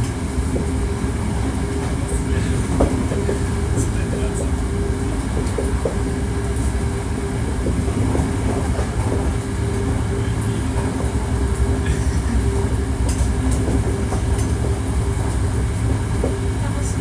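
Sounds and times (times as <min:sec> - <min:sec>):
train motor whine: 0:00.0 - 0:17.0
train wheels rumbling on rail: 0:00.0 - 0:17.0
light track clicks: 0:07.6 - 0:16.7.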